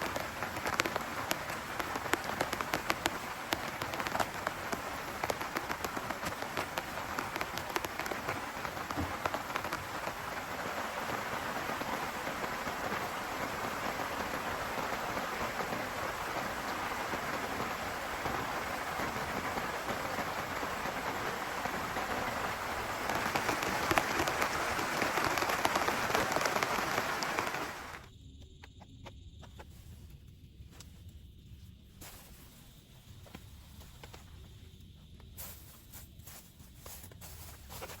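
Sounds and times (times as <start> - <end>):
heavy rain pouring: 0.0 - 28.1.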